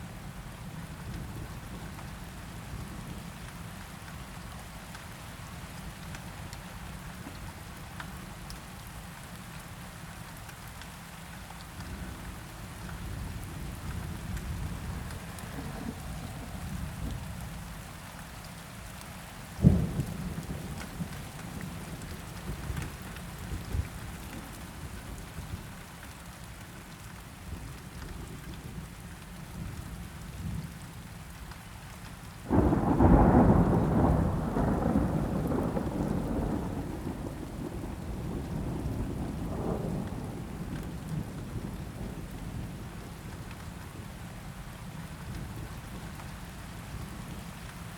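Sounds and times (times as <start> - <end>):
rain falling: 0.0 - 47.9
low rolling thunder: 13.1 - 17.5, 19.6 - 22.8, 32.5 - 43.2
loud thunderclap rumbling: 32.5 - 42.2.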